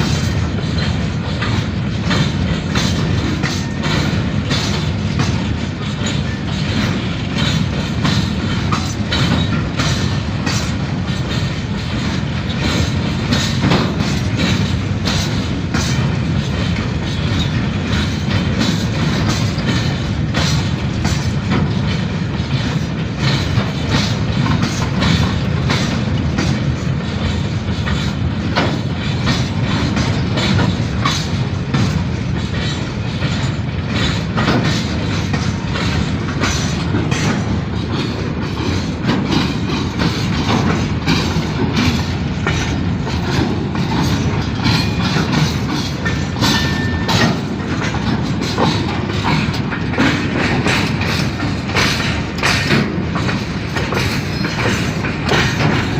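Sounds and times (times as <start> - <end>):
train rumbling: 0.0 - 55.9
wheels clattering over rails: 0.0 - 55.9.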